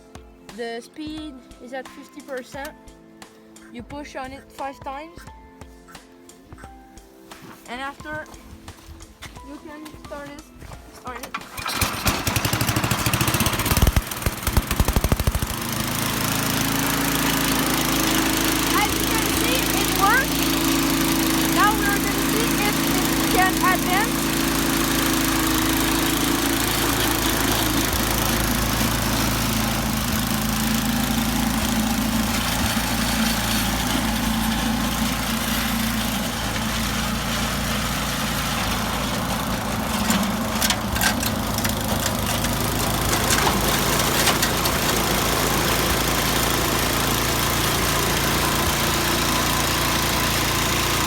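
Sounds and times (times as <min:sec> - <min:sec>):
small engine running: 0:11.3 - 0:51.0.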